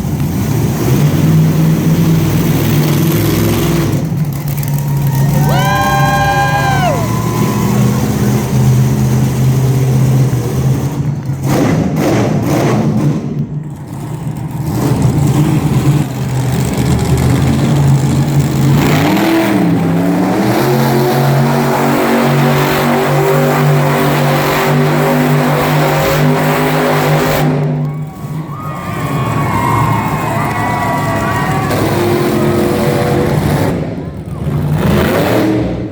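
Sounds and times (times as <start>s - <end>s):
truck engine revving: 0.0s - 35.9s.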